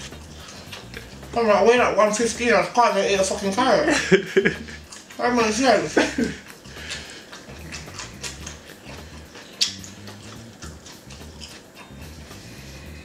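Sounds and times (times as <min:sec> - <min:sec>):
wet mouth clicks: 0:00.0 - 0:01.4, 0:04.5 - 0:05.2, 0:06.0 - 0:13.0
person chewing raw carrot: 0:00.0 - 0:02.5, 0:03.2 - 0:13.0.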